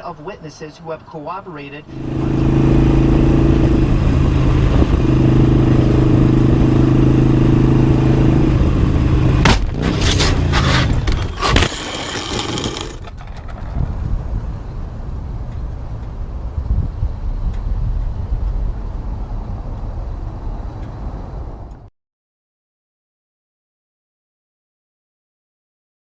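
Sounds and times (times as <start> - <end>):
steady droning tone: 1.8 - 4.8
car crash impacts: 9.4 - 13.8
scraping and clatter: 9.5 - 14.0.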